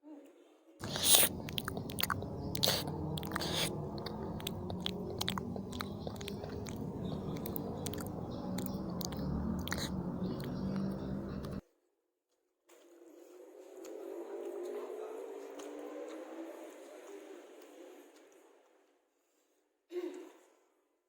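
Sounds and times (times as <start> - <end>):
chewing fried noodles: 0.8 - 11.6
wet mouth clicks and smacks: 0.8 - 11.6.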